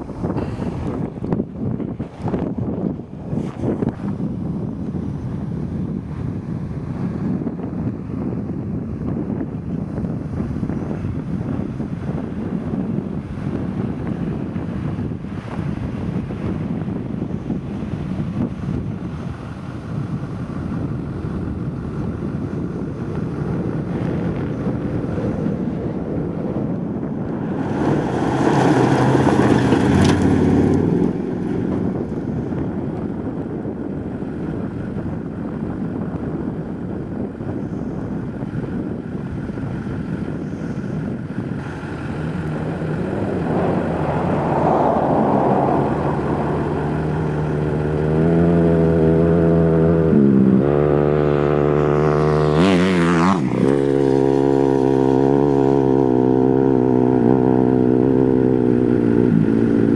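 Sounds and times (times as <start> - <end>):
wind buffeting microphone: 0.0 - 59.9
truck engine driving past: 27.2 - 33.4, 41.6 - 59.9.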